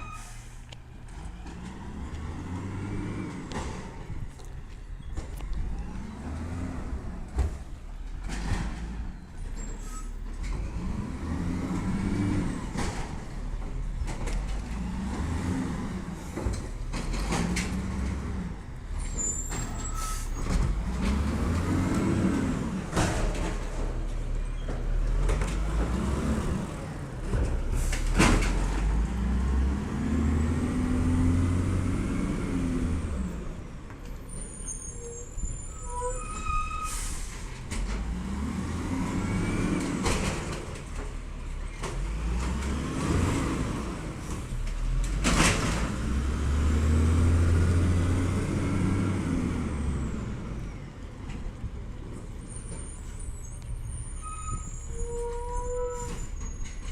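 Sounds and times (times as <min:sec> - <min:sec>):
garbage truck engine revving: 0:24.9 - 0:33.6, 0:37.7 - 0:50.5.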